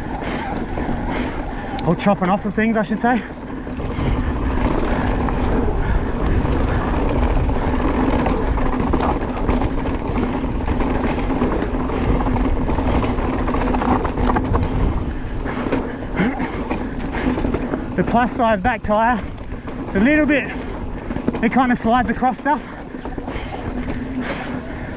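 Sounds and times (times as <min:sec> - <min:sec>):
low hum: 0:00.0 - 0:18.0
bike knocking over rough ground: 0:00.0 - 0:24.9
tyres rumbling over dirt: 0:00.0 - 0:24.9
wind buffeting microphone: 0:00.0 - 0:24.9.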